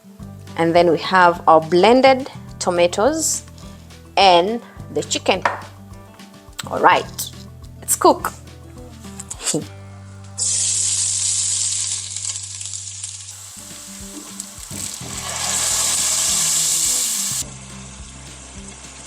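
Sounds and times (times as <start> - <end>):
food sizzling in hot oil: 10.4 - 19.0.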